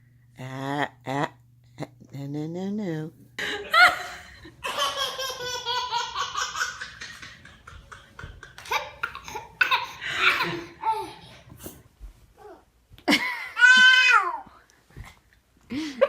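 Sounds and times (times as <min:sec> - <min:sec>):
baby laughing: 0:03.6 - 0:11.4.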